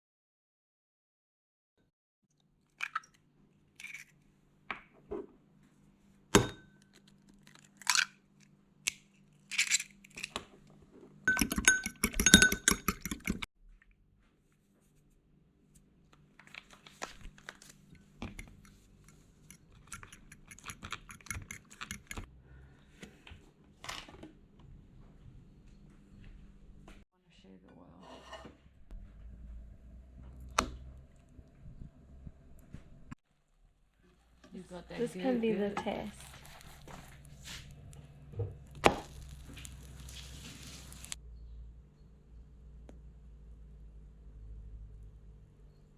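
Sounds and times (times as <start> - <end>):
faint low hum: 28.6 - 35.4.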